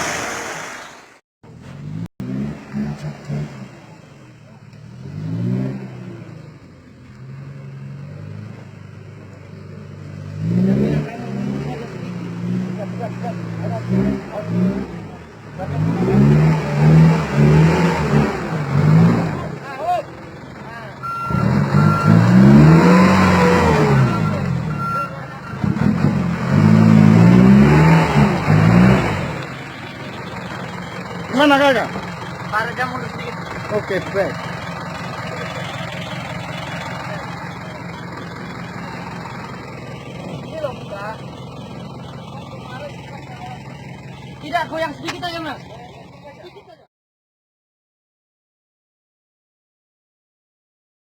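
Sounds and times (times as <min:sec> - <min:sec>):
truck engine revving: 0:00.0 - 0:46.7
reversing beeper beeps: 0:21.0 - 0:25.7.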